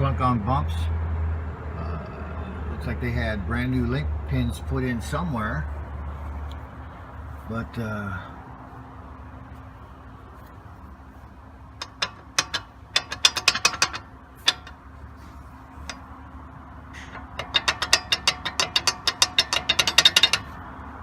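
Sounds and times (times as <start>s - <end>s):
sharp metallic clicks: 11.8s - 15.0s, 17.0s - 20.8s.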